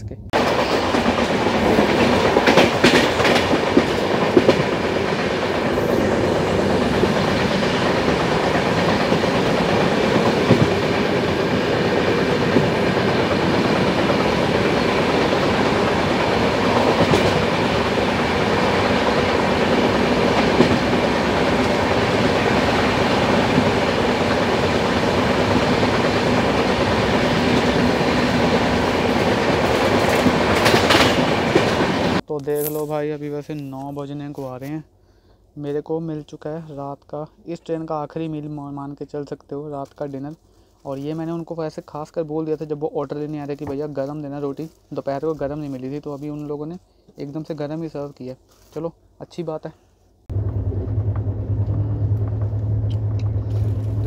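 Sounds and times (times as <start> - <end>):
train rumbling over track: 0.0 - 32.7, 50.3 - 54.0.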